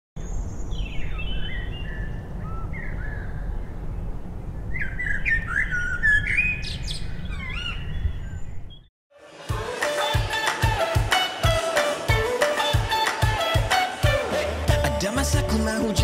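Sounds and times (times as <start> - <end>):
birds chirping: 0.2 - 8.9.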